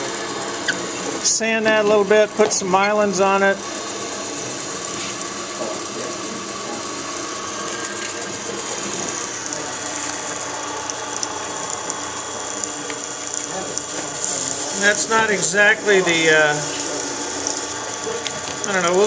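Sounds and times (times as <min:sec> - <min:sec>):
lathe motor humming: 0:00.0 - 0:19.0
sandpaper hissing on spinning wood: 0:13.2 - 0:19.0.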